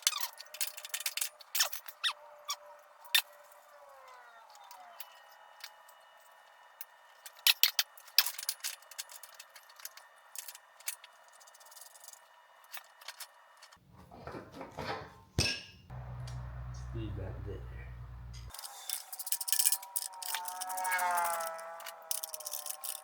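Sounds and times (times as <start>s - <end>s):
small tools clicking and clinking: 0.0s - 13.8s, 18.3s - 23.0s
rattle of handling: 18.4s - 23.0s.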